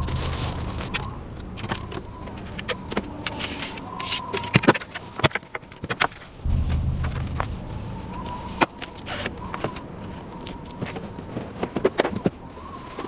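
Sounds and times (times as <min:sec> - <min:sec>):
steady low hum: 0:06.4 - 0:09.8.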